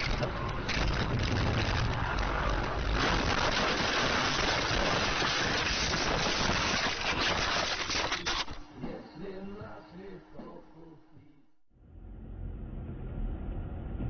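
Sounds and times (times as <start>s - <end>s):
deep rumble: 0.0s - 5.1s, 11.8s - 14.0s.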